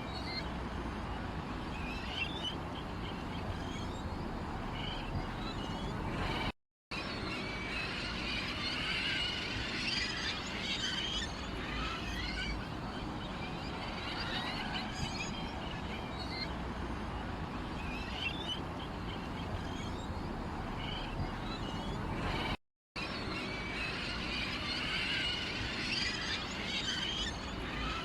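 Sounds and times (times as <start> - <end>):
sparrows chirping: 1.8 - 6.5, 17.6 - 22.5.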